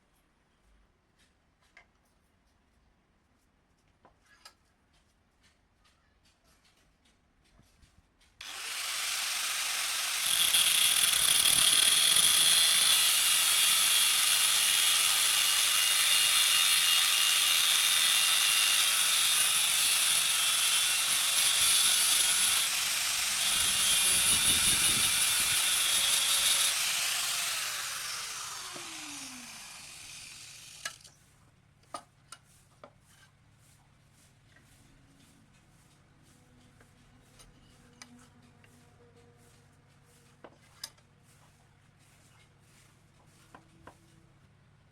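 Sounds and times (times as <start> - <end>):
electric power tool on metal: 8.4 - 31.1.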